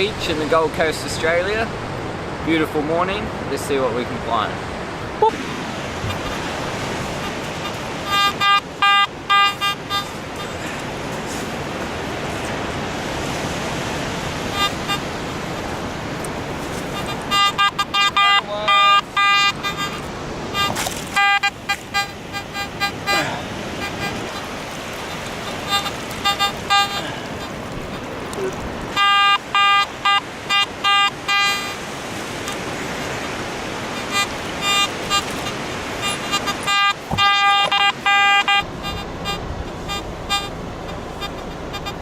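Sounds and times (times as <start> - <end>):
metal detector beeps: 7.2 - 10.6, 14.5 - 15.7, 16.8 - 24.5, 25.1 - 27.6, 28.9 - 31.8, 34.0 - 42.0.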